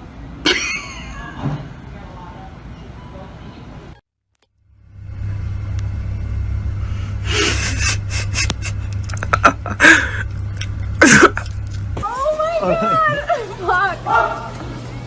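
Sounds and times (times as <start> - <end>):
vehicle engine rumble: 4.6 - 15.0
loud bursts of noise: 4.7 - 12.2.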